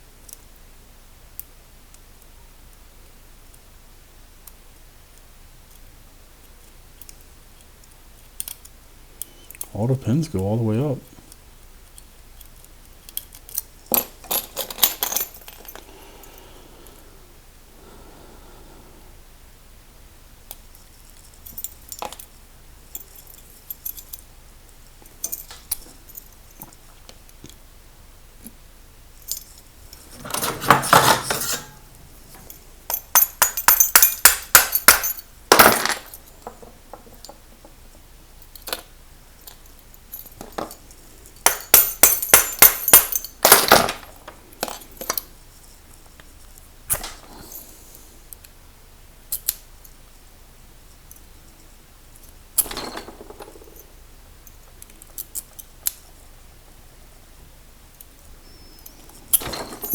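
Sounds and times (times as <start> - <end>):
metal padlock parts clinking: 12.4 - 16.4, 20.5 - 24.3, 25.0 - 26.8, 29.2 - 37.7, 38.4 - 45.4, 52.2 - 56.2, 58.0 - 59.9
scraping rustle: 29.9 - 32.5.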